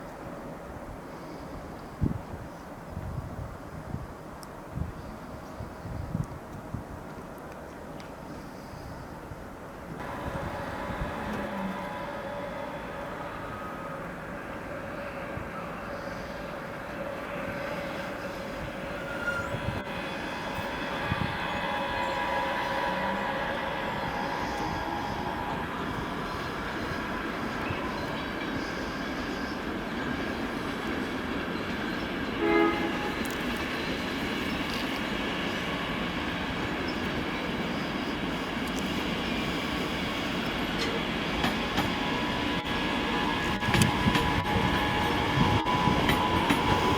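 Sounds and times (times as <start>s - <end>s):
train rumbling past: 8.1s - 46.9s
train horn blast: 10.0s - 28.2s, 32.4s - 34.0s, 41.6s - 46.9s.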